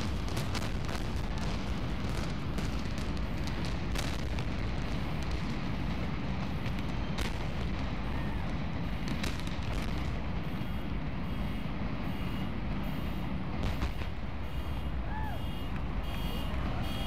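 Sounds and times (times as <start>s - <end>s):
sharp cracks: 0.0s - 10.2s
demolition rumble: 0.0s - 16.9s.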